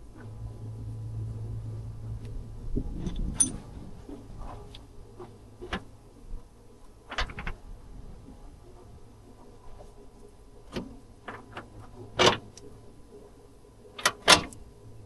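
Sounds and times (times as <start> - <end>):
faint low hum: 0.0 - 15.0
tools and metal parts clicking: 3.0 - 3.6.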